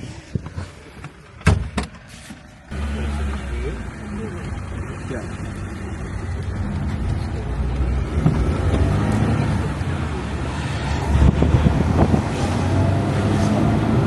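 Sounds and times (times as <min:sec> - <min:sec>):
car engine running: 0:02.4 - 0:12.8.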